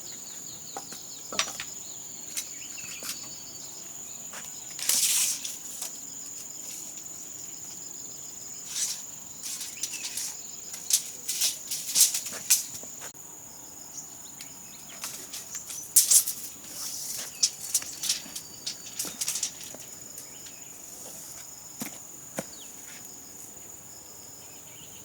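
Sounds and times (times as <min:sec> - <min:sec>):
insects trilling: 0:00.0 - 0:25.0
sharp knocks clicks and scrapes: 0:00.8 - 0:03.2, 0:08.7 - 0:13.0, 0:15.0 - 0:20.6.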